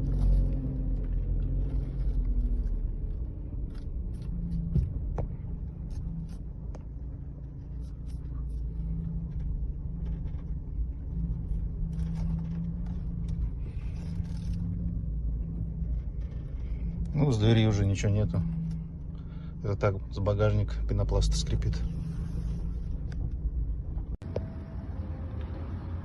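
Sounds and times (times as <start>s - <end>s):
car body creaks and clicks: 0.0s - 19.3s
road and engine rumble: 0.0s - 26.0s.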